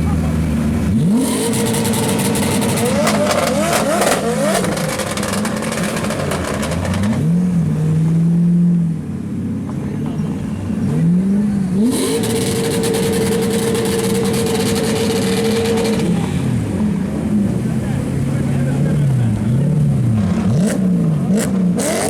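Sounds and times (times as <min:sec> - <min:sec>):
car engine revving: 0:00.0 - 0:22.0
exhaust crackling pops: 0:01.6 - 0:07.2.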